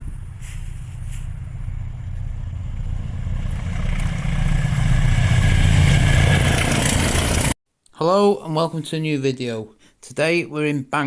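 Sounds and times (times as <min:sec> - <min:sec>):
vehicle engine rumble: 0:00.0 - 0:07.6.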